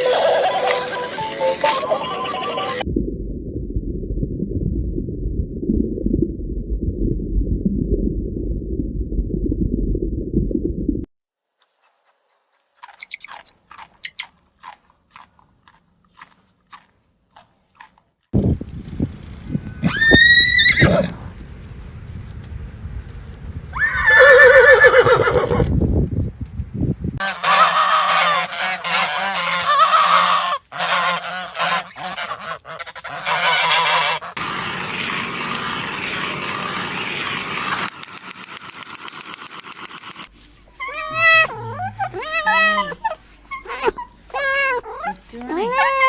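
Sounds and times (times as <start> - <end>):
geese honking: 0.0 - 2.8, 27.2 - 37.9, 40.8 - 44.7
high wavering calls: 0.0 - 2.8, 13.0 - 14.3, 40.7 - 46.0
fast clicks: 37.8 - 40.3.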